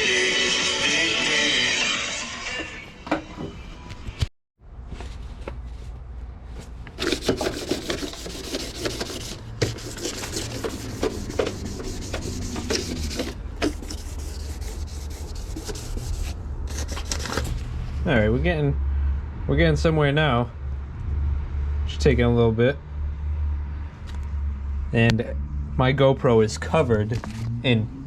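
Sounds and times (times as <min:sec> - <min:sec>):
sandpaper scrubbing painted metal: 0:07.0 - 0:17.6.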